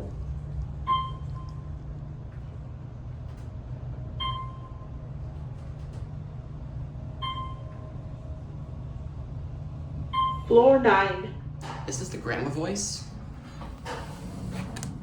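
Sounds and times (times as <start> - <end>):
elevator low hum: 0.0 - 15.0
electronic elevator chime: 7.2 - 7.8.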